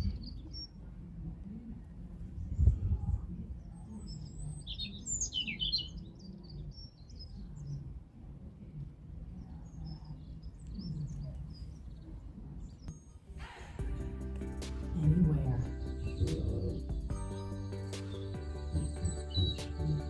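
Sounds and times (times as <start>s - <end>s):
small songbirds chirping: 0.0s - 0.9s, 3.3s - 20.0s
low outdoor rumble: 12.2s - 20.0s.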